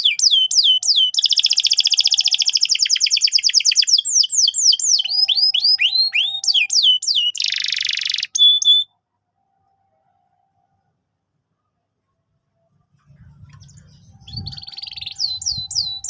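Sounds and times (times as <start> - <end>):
canary singing: 0.0 - 9.0, 13.2 - 16.0.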